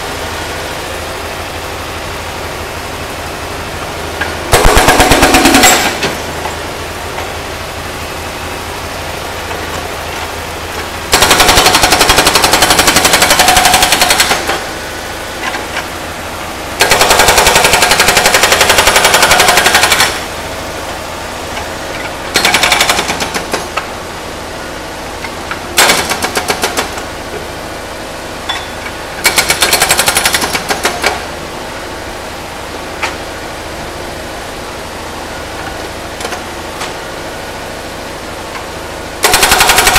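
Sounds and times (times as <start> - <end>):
diesel engine running: 0.0 - 39.9
hydraulic breaker hammering metal: 4.5 - 6.5.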